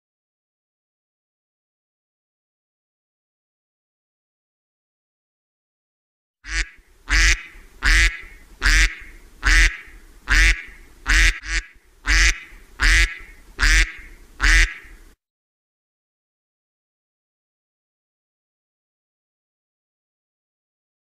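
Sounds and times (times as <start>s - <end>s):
duck quacking: 6.5s - 15.0s.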